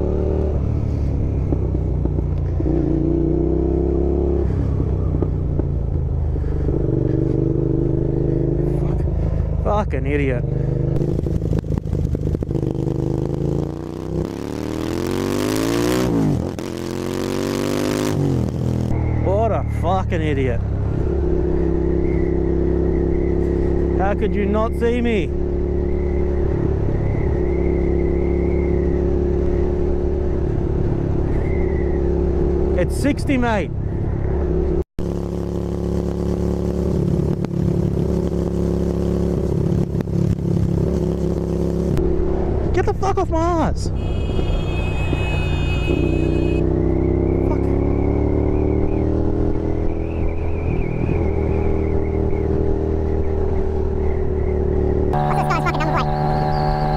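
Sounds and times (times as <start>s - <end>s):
motorcycle engine accelerating: 0.0s - 33.0s, 34.1s - 42.8s, 44.7s - 56.9s.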